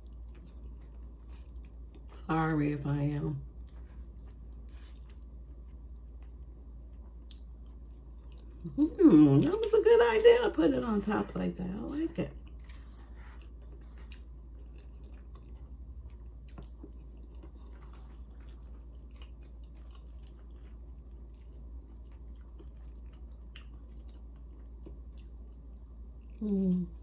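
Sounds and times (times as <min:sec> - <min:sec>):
chewing and lip smacking: 0:00.0 - 0:02.2, 0:03.5 - 0:09.8, 0:12.3 - 0:27.0
person humming mm: 0:26.4 - 0:27.0.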